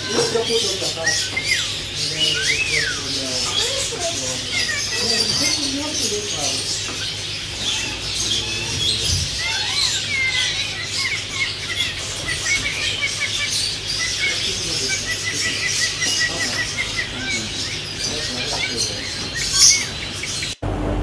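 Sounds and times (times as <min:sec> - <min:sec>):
birds chirping: 0:00.0 - 0:20.8.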